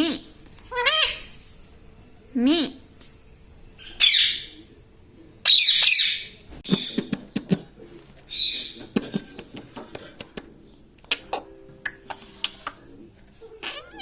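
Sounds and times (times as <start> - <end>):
parrot squawking: 0.0 - 1.3, 3.8 - 4.6, 5.4 - 7.0, 13.6 - 14.0.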